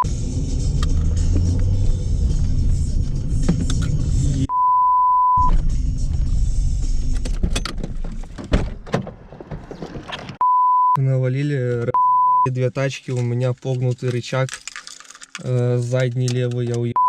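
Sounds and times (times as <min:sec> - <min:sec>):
car engine rumbling: 0:00.0 - 0:10.4
censor bleep: 0:04.5 - 0:05.6, 0:10.4 - 0:11.0, 0:11.9 - 0:12.5
sharp clicks and knocks: 0:13.1 - 0:17.0.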